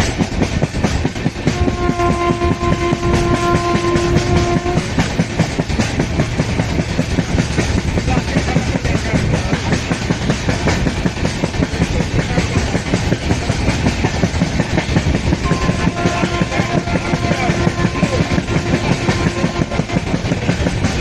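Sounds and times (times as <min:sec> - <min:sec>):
train wheels clattering: 0:00.0 - 0:21.0
train horn: 0:01.5 - 0:05.1, 0:15.4 - 0:20.6.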